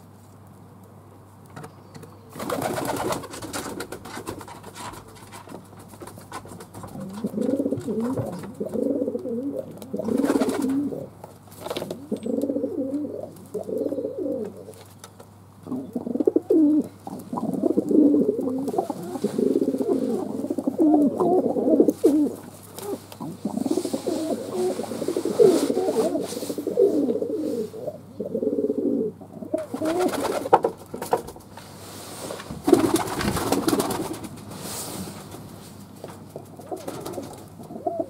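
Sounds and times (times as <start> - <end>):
pigeons cooing: 6.2 - 30.8, 36.3 - 38.0.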